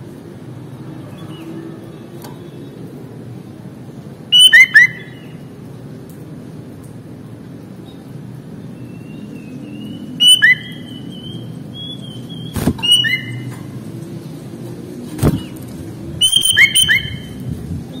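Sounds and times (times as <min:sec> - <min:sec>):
bird whistling song: 0:04.3 - 0:05.4, 0:08.8 - 0:13.5, 0:16.2 - 0:18.0.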